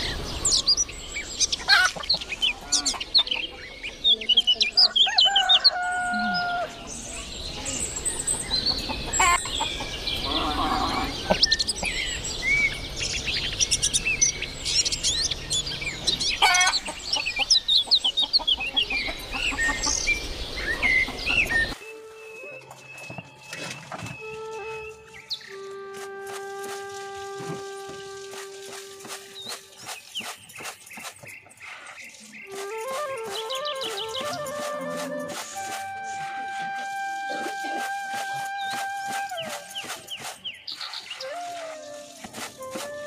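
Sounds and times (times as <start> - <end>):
small birds chirping: 0.0 - 25.8, 27.8 - 43.0
chickens clucking: 1.6 - 3.9, 8.4 - 12.0, 16.4 - 20.2
rooster crowing: 4.9 - 6.8.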